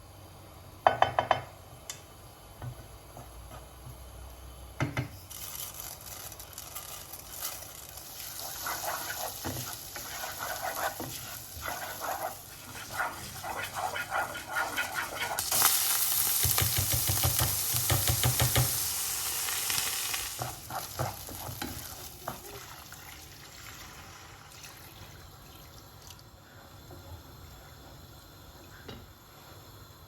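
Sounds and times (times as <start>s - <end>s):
food sizzling in a pan: 5.2s - 25.0s.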